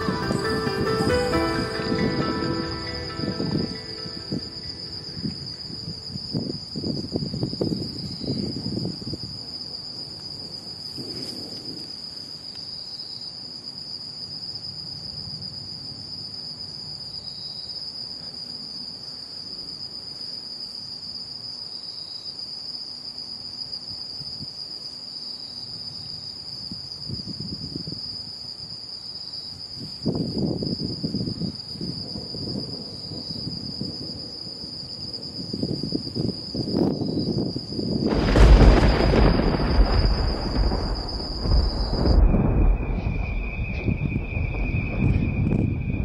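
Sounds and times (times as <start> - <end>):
night insects chirring: 0.0 - 46.0
low rumbles: 38.1 - 46.0.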